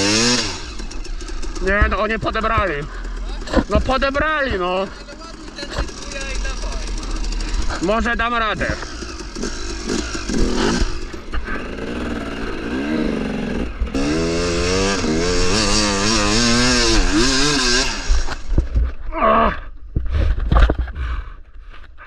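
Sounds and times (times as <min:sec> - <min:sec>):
dirt bike engine revving: 0:00.0 - 0:18.9.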